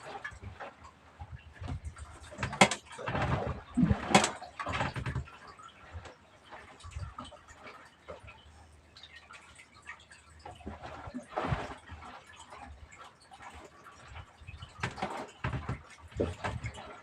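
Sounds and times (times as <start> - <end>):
knocks and clatter: 0.1 - 6.1, 14.0 - 17.0.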